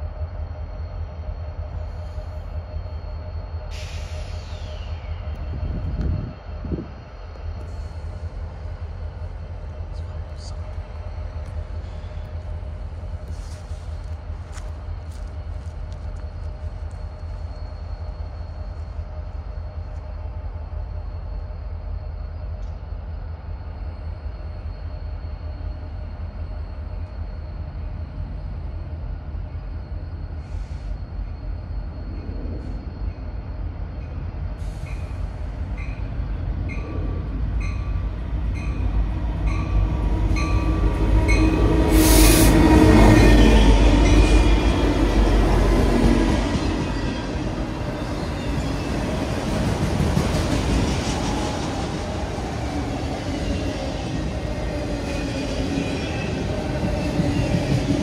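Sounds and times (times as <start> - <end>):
diesel locomotive idling: 0.0 - 22.2, 34.2 - 58.0
freight train passing: 0.0 - 58.0
squealing train wheels: 0.0 - 58.0.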